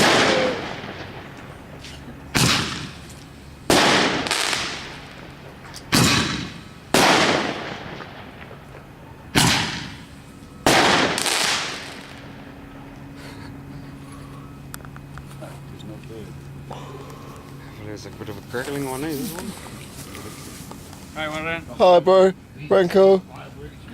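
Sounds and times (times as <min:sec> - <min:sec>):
fireworks bangs: 0:00.0 - 0:12.6.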